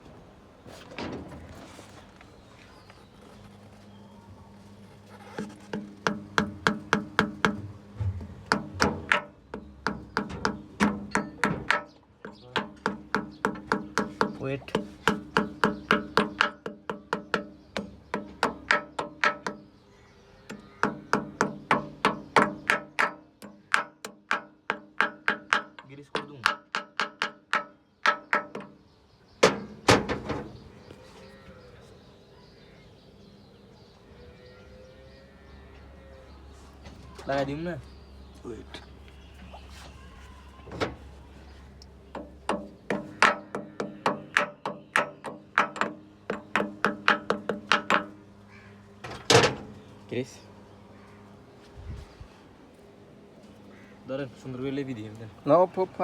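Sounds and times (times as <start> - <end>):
hammer tapping on metal: 5.4 - 7.7, 8.4 - 19.7, 20.5 - 28.8, 42.1 - 48.2.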